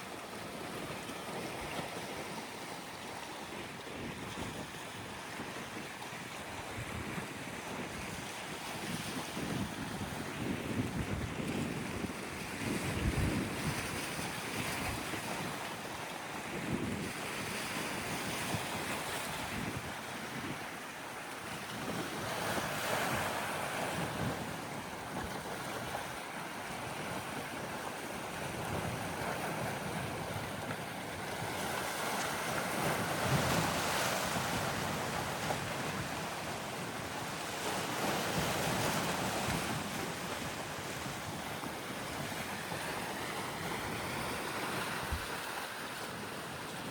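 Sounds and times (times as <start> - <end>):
wind buffeting microphone: 3.5 - 20.7, 21.5 - 46.8
sea waves washing in and out: 12.1 - 46.9.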